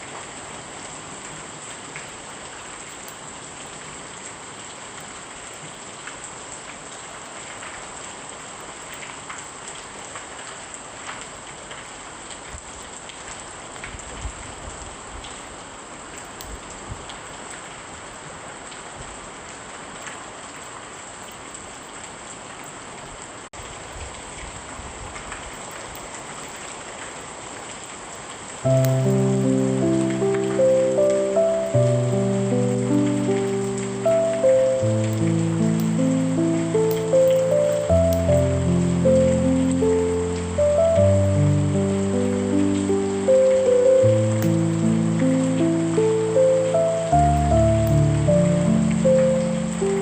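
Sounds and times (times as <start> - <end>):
steady rain falling: 0.0 - 50.0
light drop ticks: 28.7 - 31.3.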